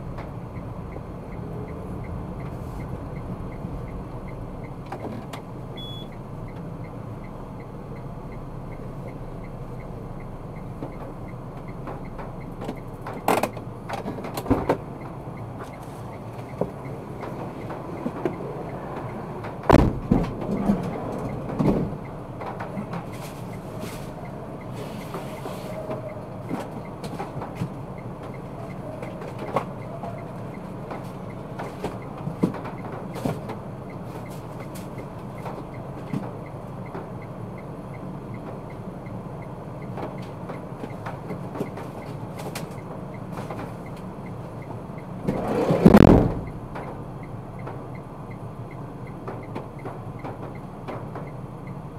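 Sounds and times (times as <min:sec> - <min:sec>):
car road and engine noise: 0:00.0 - 0:51.9
knocks and bumps: 0:16.6 - 0:23.1, 0:45.3 - 0:47.0
loud thud: 0:19.7 - 0:20.3, 0:45.8 - 0:46.5.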